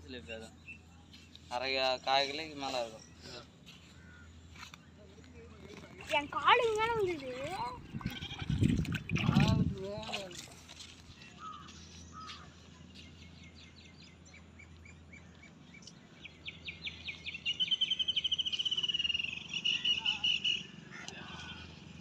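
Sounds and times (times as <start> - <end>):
small bird singing: 11.1 - 22.0.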